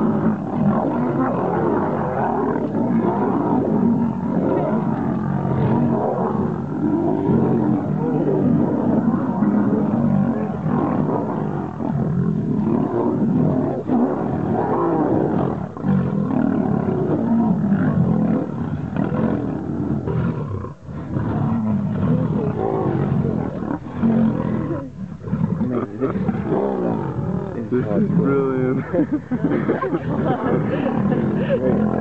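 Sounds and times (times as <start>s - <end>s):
lionesses growling: 0.0s - 32.0s.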